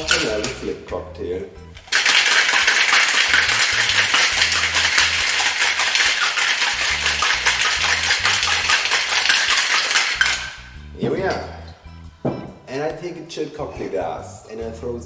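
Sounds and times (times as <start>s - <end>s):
ice rattling in cocktail shaker: 0.0s - 0.9s, 1.8s - 11.8s
background music with bass: 0.0s - 1.9s, 3.3s - 6.0s, 6.8s - 9.6s, 10.2s - 15.0s.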